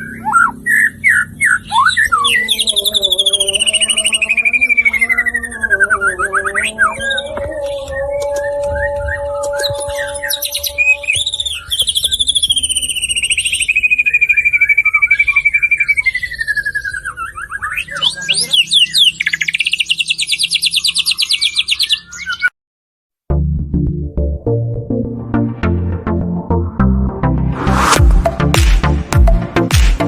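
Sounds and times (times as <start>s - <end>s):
bird singing trills: 0.0s - 22.5s.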